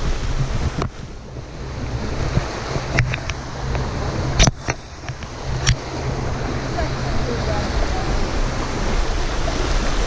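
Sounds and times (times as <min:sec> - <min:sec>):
creek rushing: 0:00.0 - 0:10.0
wind rumbling on microphone: 0:00.0 - 0:10.0
sharp clicks and knocks: 0:02.4 - 0:05.8.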